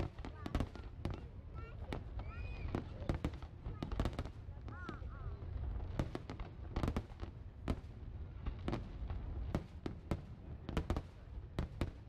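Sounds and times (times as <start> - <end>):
fireworks bursting with bangs: 0.0 - 12.0.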